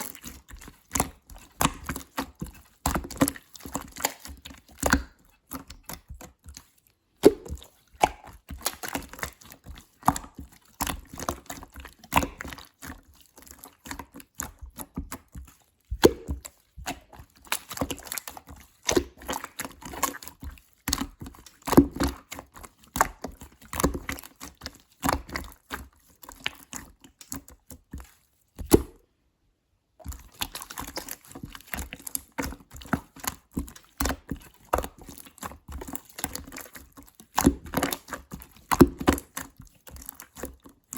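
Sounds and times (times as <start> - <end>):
slime squishing with sticky pops: 0.0 - 29.1, 29.9 - 40.9.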